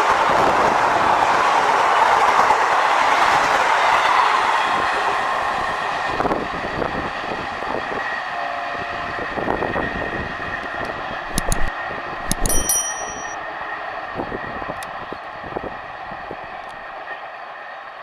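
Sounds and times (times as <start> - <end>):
sharp clicks: 11.3 - 13.4.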